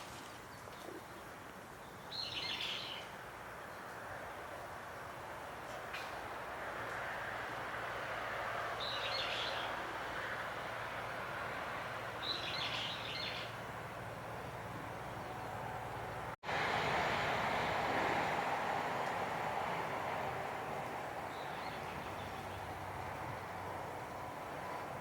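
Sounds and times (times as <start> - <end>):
warbler singing: 1.8 - 3.1, 8.8 - 9.8, 12.2 - 13.7, 21.3 - 24.3.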